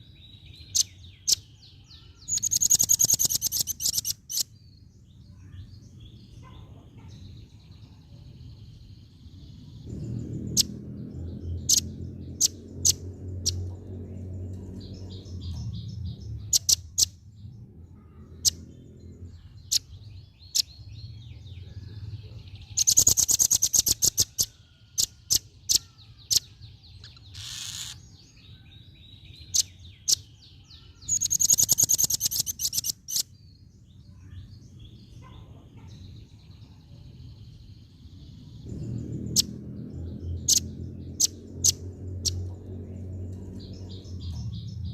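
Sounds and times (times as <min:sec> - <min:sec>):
bird chattering trills: 0:00.7 - 0:04.4, 0:14.9 - 0:17.1, 0:22.7 - 0:28.1, 0:29.5 - 0:33.3
bird chip calls: 0:00.7 - 0:04.4, 0:22.8 - 0:28.1, 0:29.4 - 0:33.3
low rumble: 0:09.3 - 0:16.6, 0:37.0 - 0:44.9.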